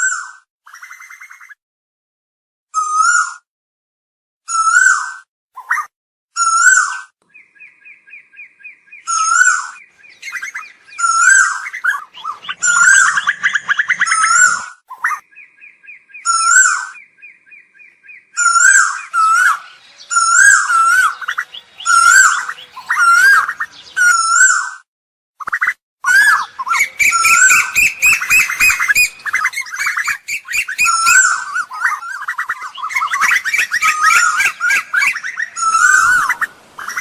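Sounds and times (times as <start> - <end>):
koel calling: 9.0 - 15.2, 17.8 - 24.7, 26.0 - 37.0.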